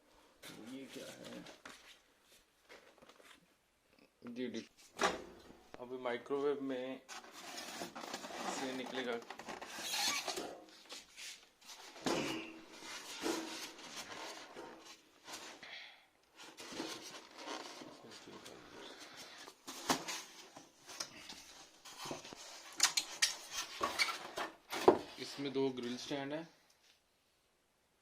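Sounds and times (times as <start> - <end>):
rustling handling noise: 7.0 - 15.6, 16.3 - 26.2.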